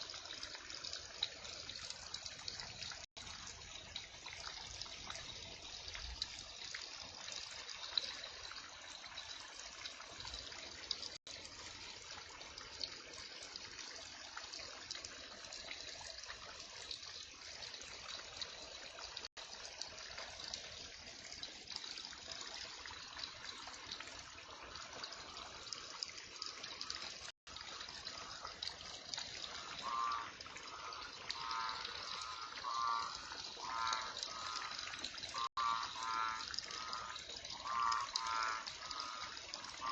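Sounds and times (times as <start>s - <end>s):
water trickling: 0.0s - 39.9s
frog croaking: 29.6s - 39.9s.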